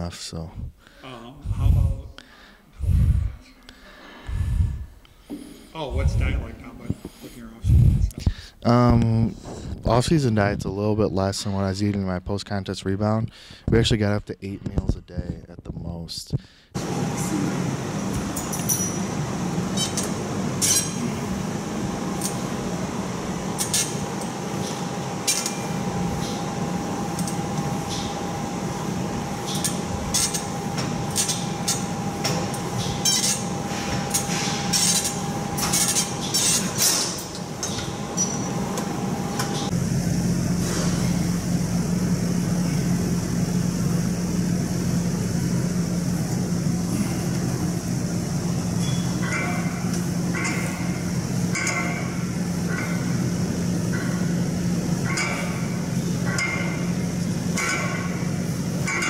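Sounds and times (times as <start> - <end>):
lower steady hum: 0.0 - 59.0
steady background hum: 0.0 - 59.0
metal weights clinking: 18.4 - 19.1, 48.8 - 53.2, 55.0 - 59.0.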